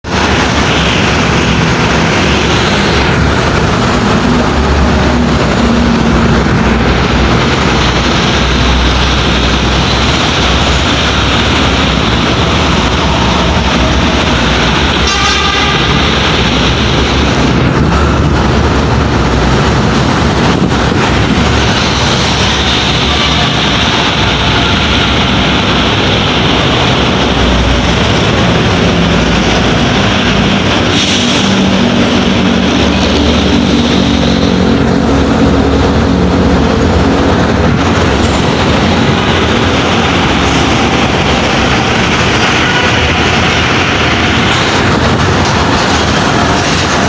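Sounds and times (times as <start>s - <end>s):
heavy trucks passing: 0.0s - 47.0s
vehicle horn toot: 15.0s - 16.0s.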